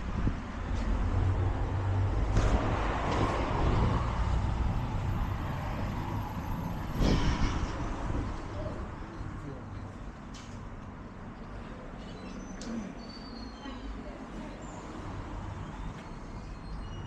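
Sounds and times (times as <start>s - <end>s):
wind buffeting microphone: 0.0s - 9.0s
road traffic noise: 0.0s - 17.0s.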